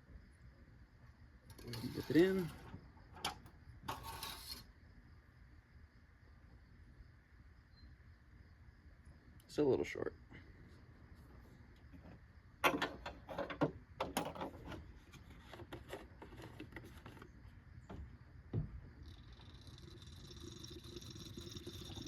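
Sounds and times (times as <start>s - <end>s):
thump: 17.9s - 18.8s
oil pouring into funnel: 19.0s - 22.0s.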